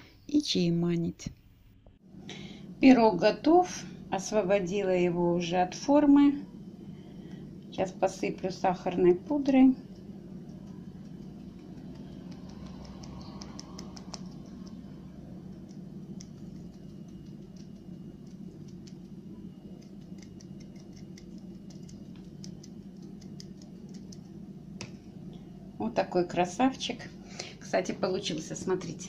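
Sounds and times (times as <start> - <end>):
steady low hum: 0.0 - 29.0
sugar sifting taps and scratches: 9.8 - 14.8, 15.5 - 24.4.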